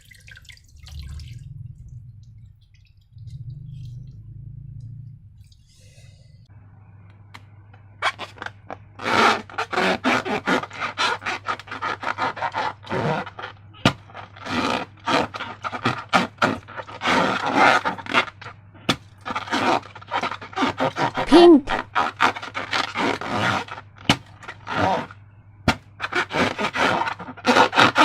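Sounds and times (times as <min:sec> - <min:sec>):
slime crackling and scraping: 0:08.0 - 0:25.2, 0:26.0 - 0:28.0.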